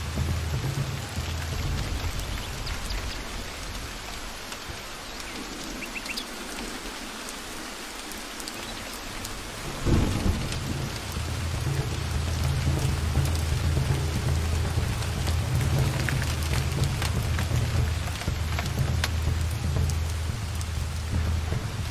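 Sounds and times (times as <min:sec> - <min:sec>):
thunderclap: 0:00.0 - 0:04.5, 0:09.1 - 0:21.9
rolling thunder: 0:00.0 - 0:04.8, 0:09.1 - 0:21.9
heavy rain in forest: 0:00.0 - 0:21.9.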